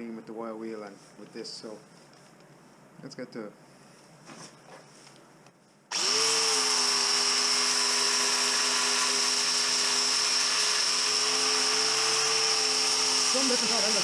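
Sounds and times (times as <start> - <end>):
wire wheel power tool whining: 5.9 - 14.0.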